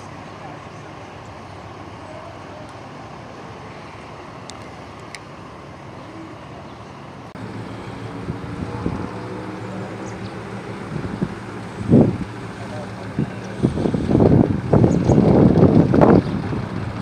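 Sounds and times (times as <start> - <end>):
outdoor rumble: 0.0 - 17.0
motor humming: 7.4 - 17.0.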